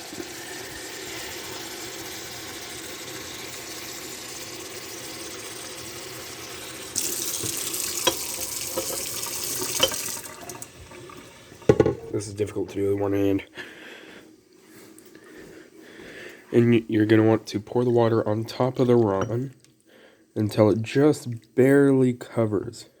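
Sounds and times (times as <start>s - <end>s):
tap water filling a cup: 3.0s - 12.2s.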